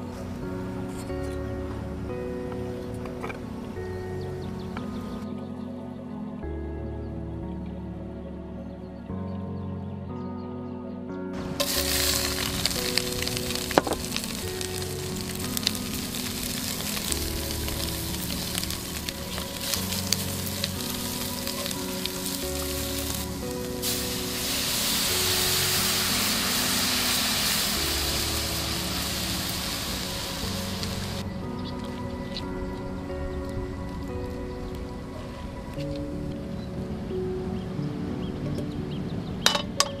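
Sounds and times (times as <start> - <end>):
soft background music: 0.0 - 40.0
food frying in hot oil: 11.4 - 31.2.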